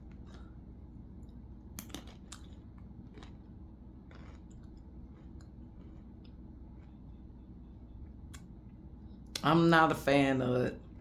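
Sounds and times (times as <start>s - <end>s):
chewing crunchy snack: 0.0s - 7.4s.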